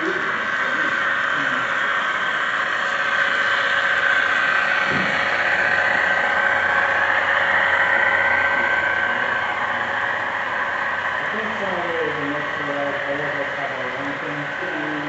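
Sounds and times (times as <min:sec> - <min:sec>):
model train engine whine: 0:00.0 - 0:15.0.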